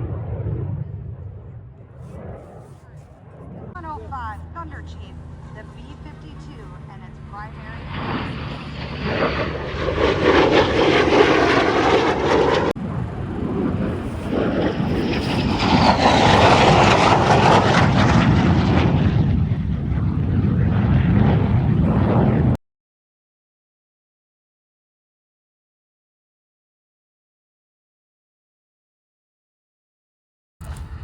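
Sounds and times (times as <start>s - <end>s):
airplane engines flying past: 0.0s - 22.6s, 30.6s - 31.0s.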